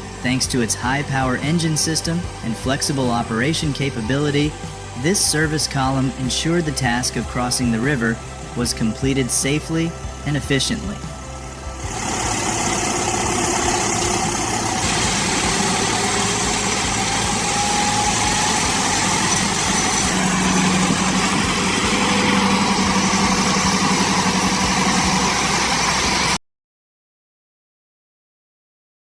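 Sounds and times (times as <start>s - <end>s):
heavy truck engine running: 6.6s - 26.4s.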